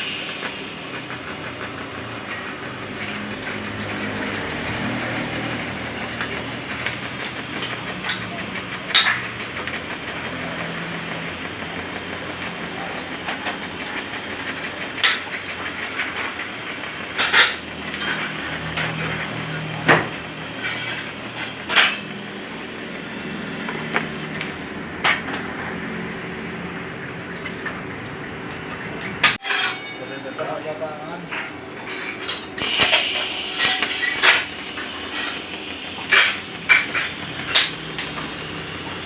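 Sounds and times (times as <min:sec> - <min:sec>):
arc welding hiss and hum: 0:00.0 - 0:25.2, 0:32.3 - 0:39.0.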